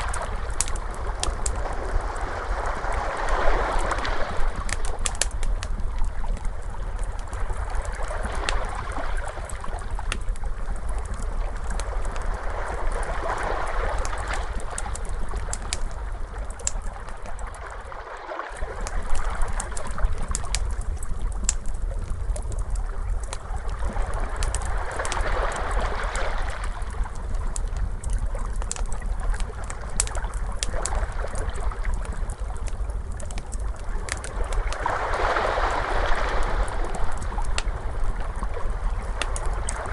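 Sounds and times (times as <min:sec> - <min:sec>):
ocean waves washing: 0:00.0 - 0:05.5, 0:10.9 - 0:20.6, 0:23.7 - 0:27.3, 0:34.0 - 0:39.9
wood fire crackling and popping: 0:00.0 - 0:17.9, 0:18.6 - 0:39.9.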